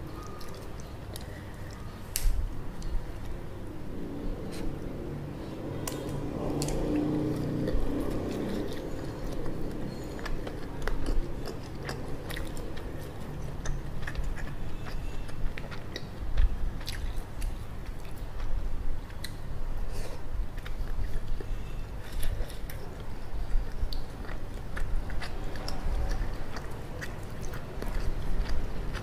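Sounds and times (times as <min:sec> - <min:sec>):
chewing and biting noodles: 0:06.4 - 0:19.4, 0:20.4 - 0:29.0.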